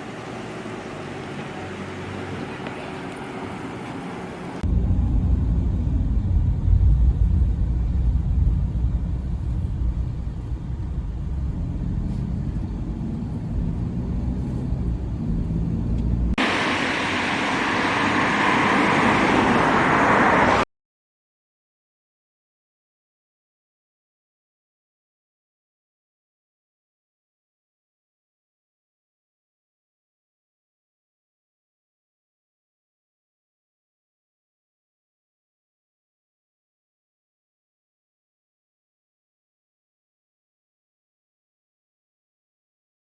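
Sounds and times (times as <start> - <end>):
train running rumble: 0.3 - 19.8.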